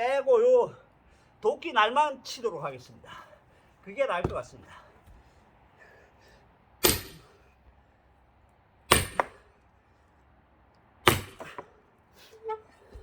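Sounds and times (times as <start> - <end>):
heavy blows splitting log: 6.8 - 7.4, 8.9 - 9.5, 11.0 - 11.8.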